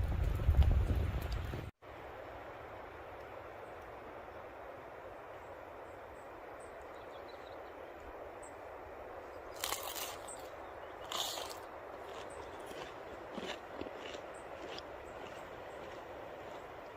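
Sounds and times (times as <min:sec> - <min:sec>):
outdoor background hiss: 0:01.2 - 0:16.9
crunching rustles: 0:09.5 - 0:16.9.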